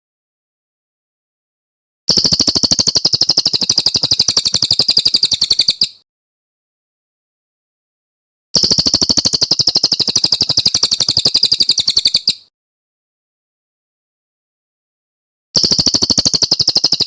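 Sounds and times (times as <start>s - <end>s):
songbird fast trill: 2.1s - 6.0s, 8.6s - 12.5s, 15.6s - 17.0s.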